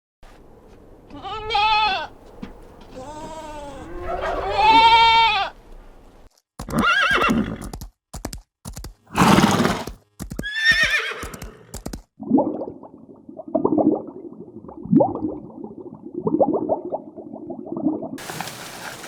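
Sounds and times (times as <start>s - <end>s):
animal wavering cries: 2.9s - 5.6s.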